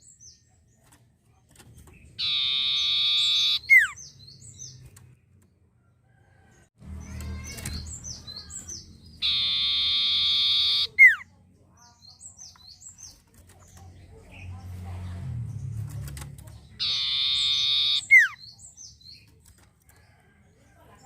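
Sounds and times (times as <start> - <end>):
bird song high down-slurred notes: 2.1 - 5.0, 6.9 - 11.2, 16.6 - 18.9
buzzing bird trill: 2.2 - 4.0, 9.2 - 11.2, 16.8 - 18.4.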